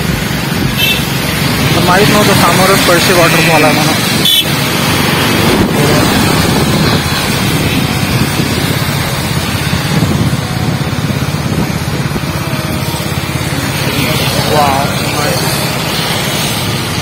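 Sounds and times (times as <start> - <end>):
vehicle running: 0.0 - 17.0
wind buffeting microphone: 4.0 - 13.5.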